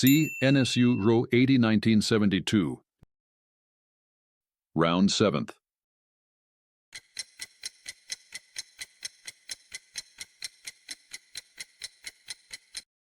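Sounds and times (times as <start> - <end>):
clock ticking: 7.0 - 12.9.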